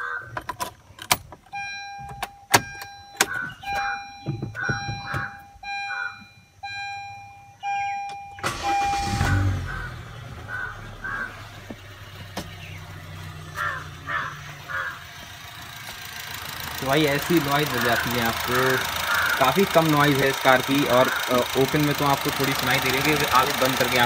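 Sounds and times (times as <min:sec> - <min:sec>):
car engine starting and idling: 0:00.0 - 0:24.0
dashboard warning chime beeping: 0:01.4 - 0:09.6, 0:16.1 - 0:24.0.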